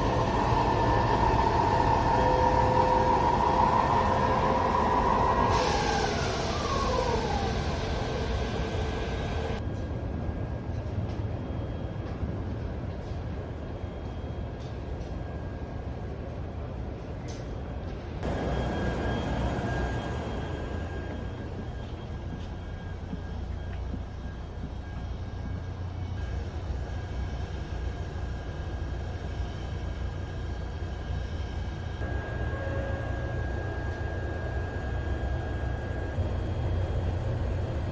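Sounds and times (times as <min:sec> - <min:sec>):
electric train motor whine: 0:00.0 - 0:09.6, 0:18.2 - 0:37.9
train running rumble: 0:00.0 - 0:15.2, 0:15.9 - 0:37.9
hiss: 0:05.2 - 0:09.6.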